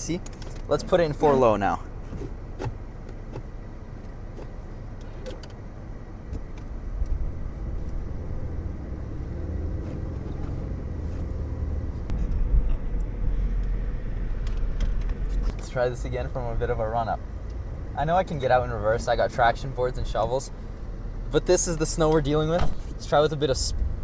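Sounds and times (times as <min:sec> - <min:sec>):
car engine revving: 0:06.3 - 0:23.7.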